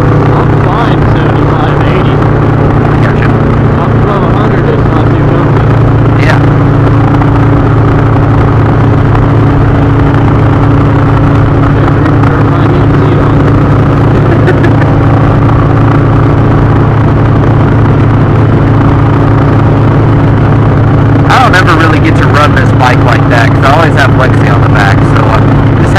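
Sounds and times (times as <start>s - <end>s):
motorcycle engine droning: 0.0s - 25.9s.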